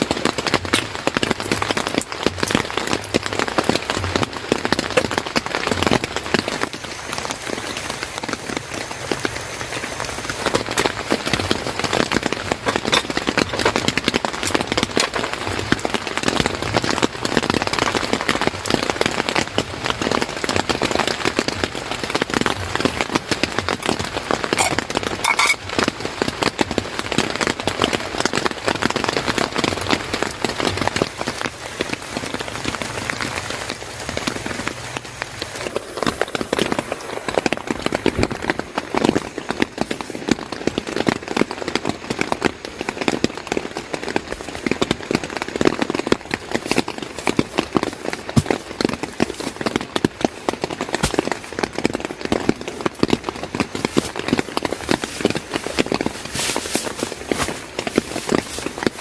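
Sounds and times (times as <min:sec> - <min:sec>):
rain patter: 0:00.0 - 0:59.0.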